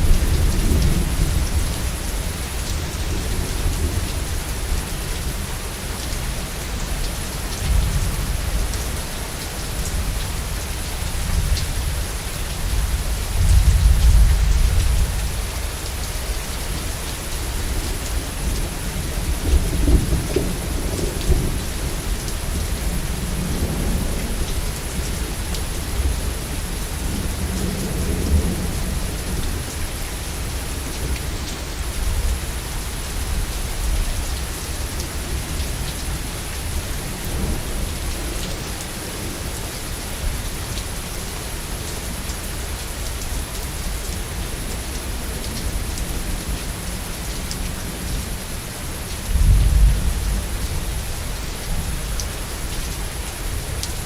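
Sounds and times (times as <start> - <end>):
heavy rain: 0.0 - 54.0
low rolling thunder: 11.1 - 39.4, 49.2 - 54.0.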